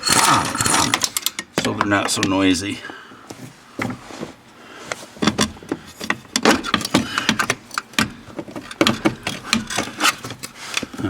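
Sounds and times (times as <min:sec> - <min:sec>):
metal parts and tools clanking: 0:00.0 - 0:02.5, 0:05.2 - 0:11.0.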